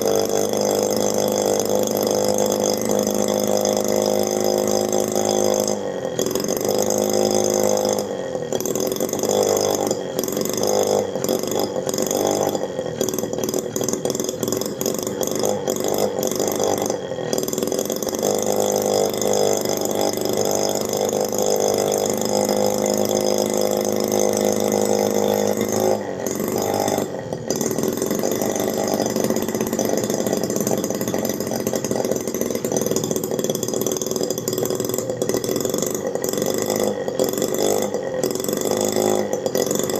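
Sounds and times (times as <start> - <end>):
small two-stroke engine running: 0.0 - 39.9.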